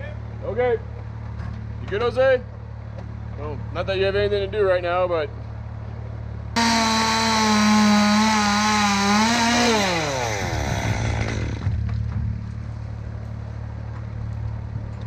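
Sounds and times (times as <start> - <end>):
chainsaw cutting at full throttle: 6.6 - 11.7.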